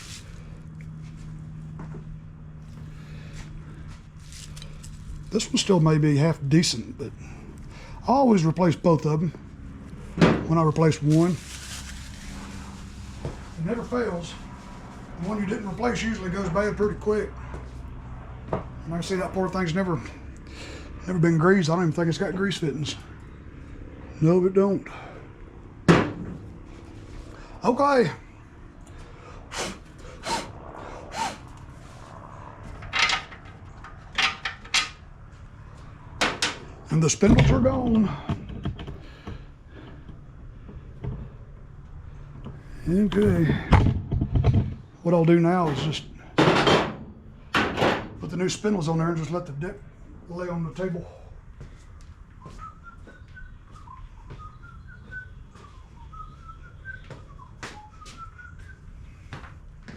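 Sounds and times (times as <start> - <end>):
metal parts knocking and clanking: 32.8 - 35.0
man whistling a tune: 52.4 - 59.3.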